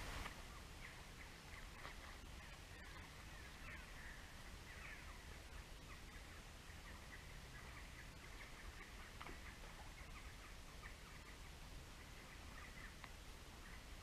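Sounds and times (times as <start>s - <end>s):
distant bird chirps: 0.2s - 14.0s.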